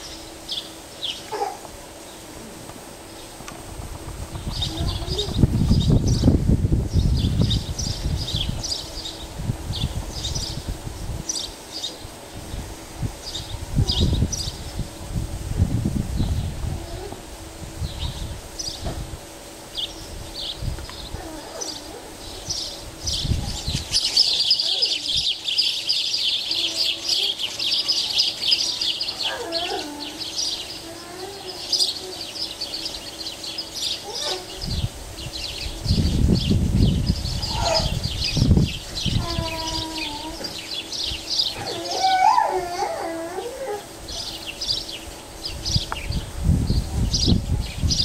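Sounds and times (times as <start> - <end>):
birds chirping: 0.0 - 15.0, 19.7 - 48.0
low rumbling noise: 0.0 - 25.4, 29.8 - 48.0
lower slurred bird calls: 4.0 - 15.0, 19.7 - 48.0.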